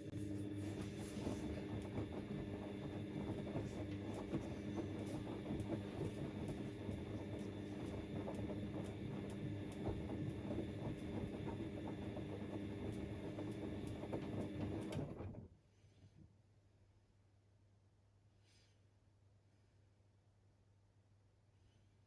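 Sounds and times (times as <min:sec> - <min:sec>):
washing machine running: 0:00.0 - 0:15.5.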